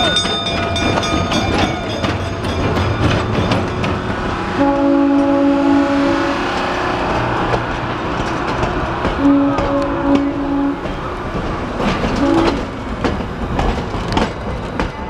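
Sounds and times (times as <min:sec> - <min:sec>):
train coaches rumbling: 0:00.0 - 0:15.0
locomotive air horn: 0:04.5 - 0:06.6, 0:09.2 - 0:10.9, 0:12.2 - 0:12.6.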